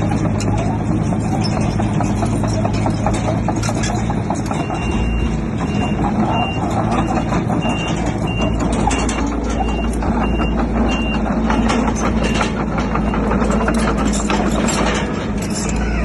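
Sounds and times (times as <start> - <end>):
bulldozer engine under load: 0.0 - 16.0
tracks and rock clanking: 0.0 - 16.0
reversing alarm beeping: 4.4 - 14.2.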